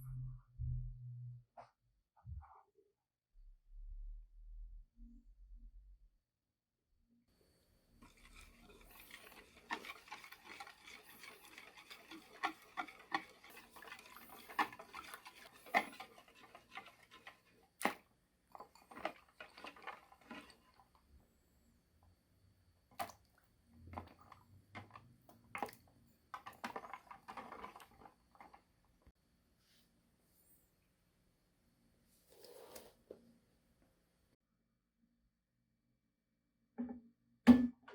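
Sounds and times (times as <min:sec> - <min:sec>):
utensil stirring in container: 0:08.0 - 0:21.2, 0:22.9 - 0:28.8.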